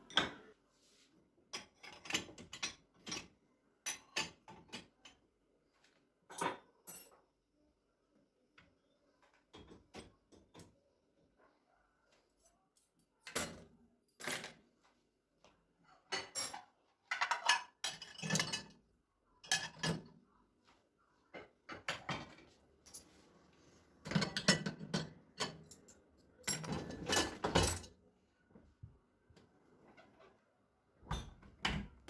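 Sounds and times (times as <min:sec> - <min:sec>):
dishes and cutlery clinking: 0:16.0 - 0:18.8, 0:19.4 - 0:20.1, 0:24.0 - 0:28.0.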